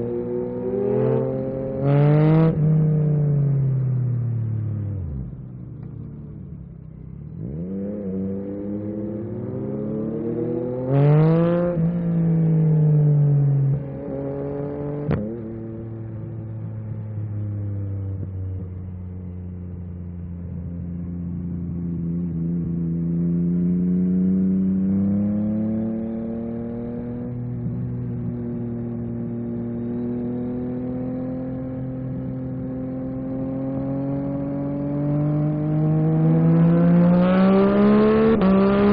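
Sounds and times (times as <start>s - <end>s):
motorcycle engine revving: 20.8s - 38.9s.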